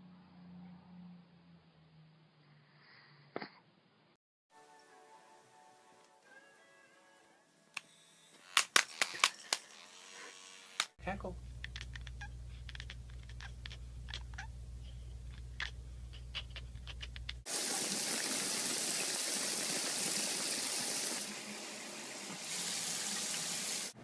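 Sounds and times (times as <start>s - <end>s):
low hum: 0.0s - 2.9s, 11.0s - 17.4s
running water rushing: 17.5s - 24.0s.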